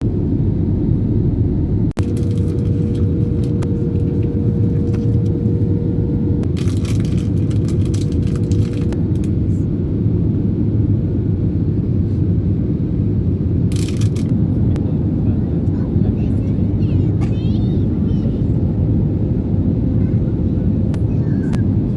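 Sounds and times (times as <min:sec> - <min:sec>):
faint steady hum: 0:00.0 - 0:11.7
loud low rumble: 0:00.0 - 0:21.9.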